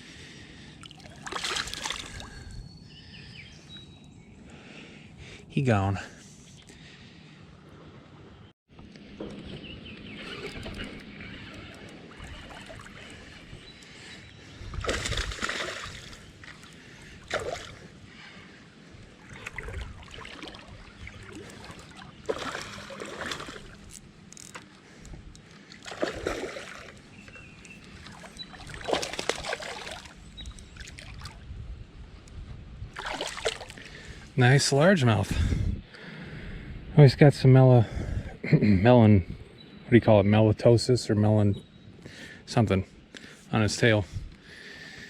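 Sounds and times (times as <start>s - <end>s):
water splashing and sloshing: 0.2s - 2.5s, 10.2s - 31.5s, 32.9s - 34.3s
river water trickling: 0.4s - 2.6s, 7.5s - 31.6s, 32.9s - 34.9s.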